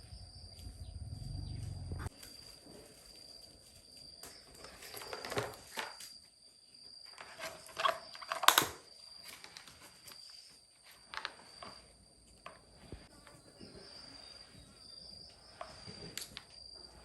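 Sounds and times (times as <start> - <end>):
high-pitched whine: 0.0 - 2.2.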